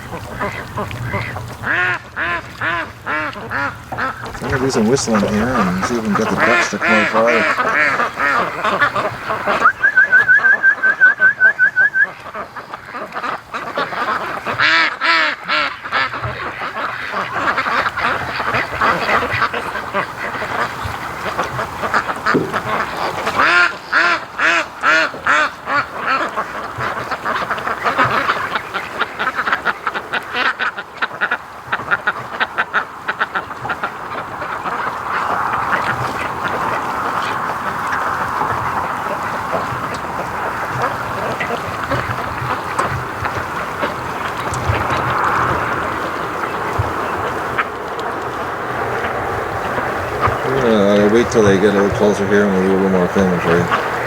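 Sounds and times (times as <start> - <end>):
ducks quacking: 0.0 - 54.0
person whistling a trill: 9.6 - 12.1.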